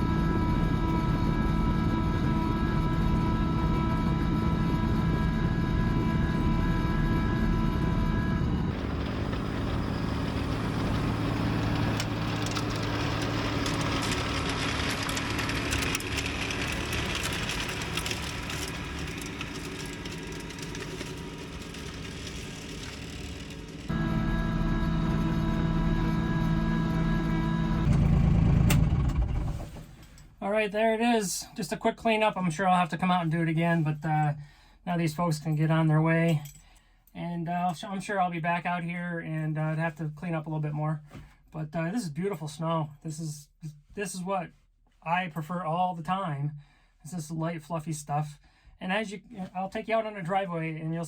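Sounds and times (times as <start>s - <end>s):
tractor diesel engine running: 0.0s - 30.4s.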